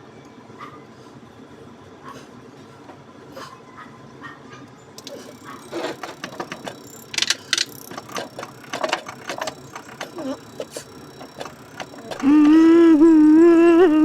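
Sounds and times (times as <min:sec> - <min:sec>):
metal parts and hand tools clinking: 0:05.0 - 0:12.4.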